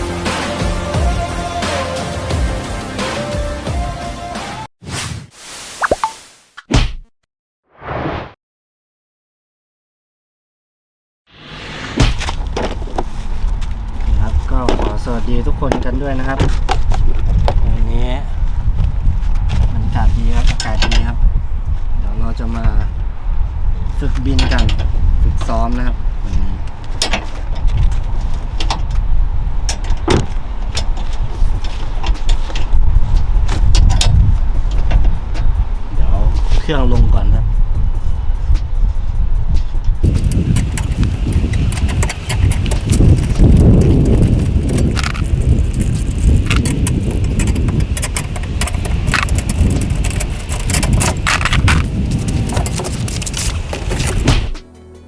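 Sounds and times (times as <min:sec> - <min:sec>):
wind buffeting microphone: 0:12.4 - 0:54.6
sharp clicks and knocks: 0:40.0 - 0:54.6.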